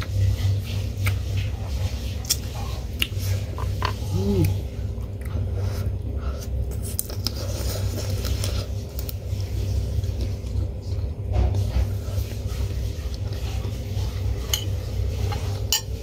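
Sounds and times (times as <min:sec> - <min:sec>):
steady low hum: 0:00.0 - 0:16.0
chewing and biting: 0:04.4 - 0:09.2.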